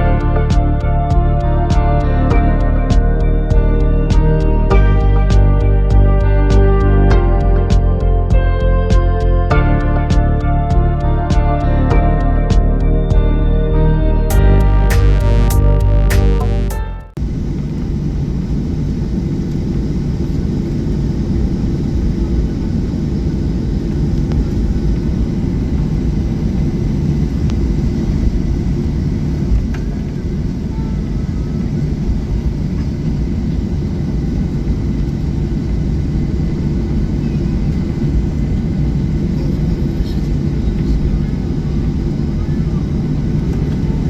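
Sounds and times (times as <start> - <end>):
music: 0.0 - 17.2
airplane cabin rumble: 17.2 - 44.0.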